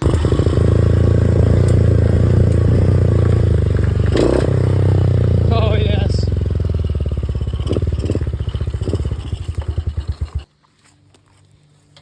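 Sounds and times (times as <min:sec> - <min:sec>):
dirt bike engine running: 0:00.0 - 0:10.5.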